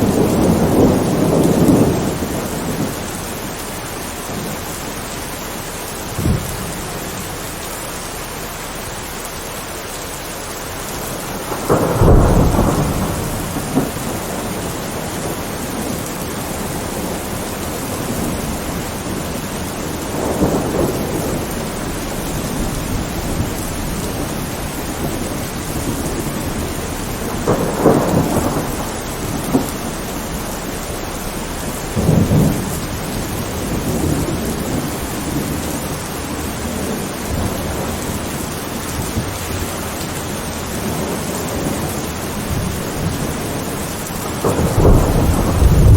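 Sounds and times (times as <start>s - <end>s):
thunder rumbling: 0.0s - 9.1s, 10.4s - 45.9s
heavy rain: 0.0s - 45.9s.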